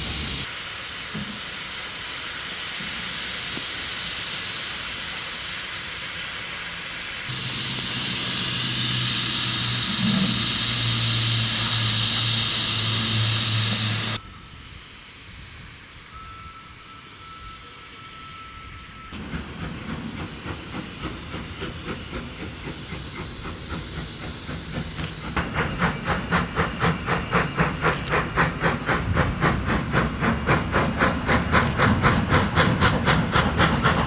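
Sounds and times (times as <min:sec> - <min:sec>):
steam locomotive hissing: 0:00.0 - 0:34.0.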